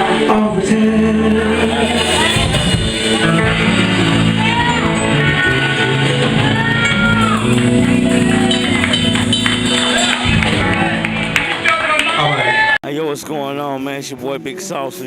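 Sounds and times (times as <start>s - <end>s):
person singing: 0.0s - 9.0s
guitar: 0.0s - 12.8s
live band music: 0.0s - 12.8s.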